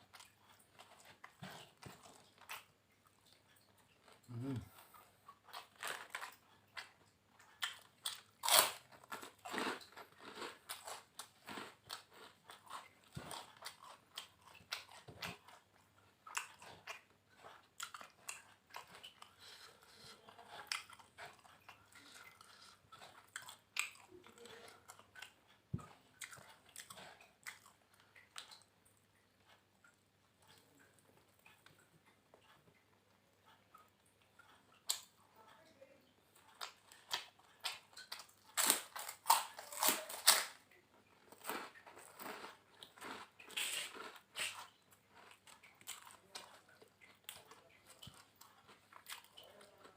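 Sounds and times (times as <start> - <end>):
chewing and crunching food: 0.0 - 49.9.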